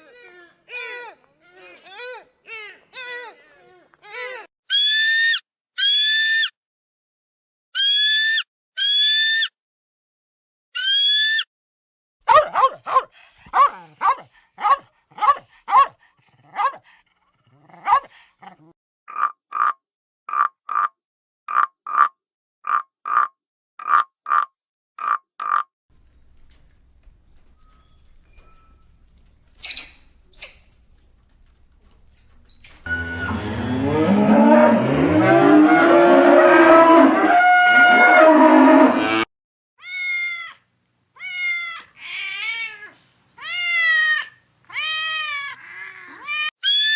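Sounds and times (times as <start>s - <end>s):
overlapping pitched animal calls: 25.0s - 36.0s
faint high chirps: 25.9s - 33.6s
short evenly spaced animal calls: 25.9s - 33.9s.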